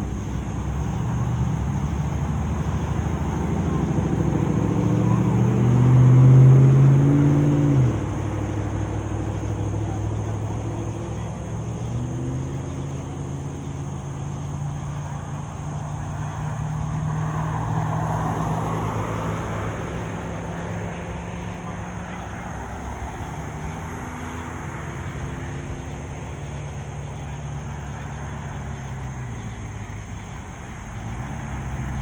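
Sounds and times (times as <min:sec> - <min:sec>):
car engine revving: 0:00.0 - 0:32.0
vehicle passing: 0:00.0 - 0:32.0.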